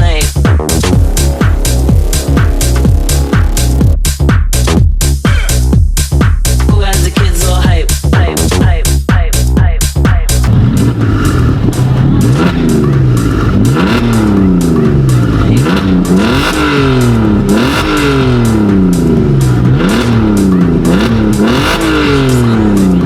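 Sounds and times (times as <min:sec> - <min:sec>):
car exhaust revving: 0:00.7 - 0:04.0, 0:10.4 - 0:23.0.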